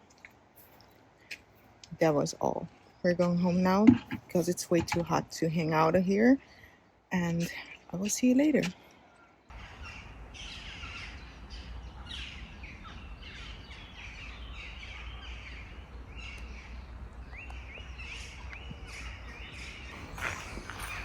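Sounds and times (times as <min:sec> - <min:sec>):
birds chirping falling calls: 0:09.0 - 0:21.0.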